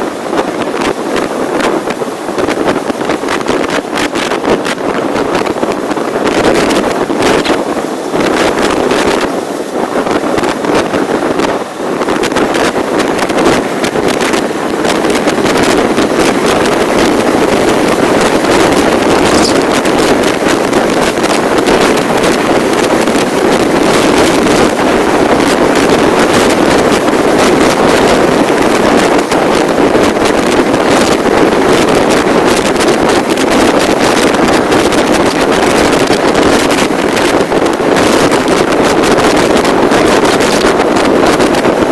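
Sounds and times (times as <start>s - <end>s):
wind buffeting microphone: 0.0s - 41.9s
vehicle running noise: 12.2s - 29.7s.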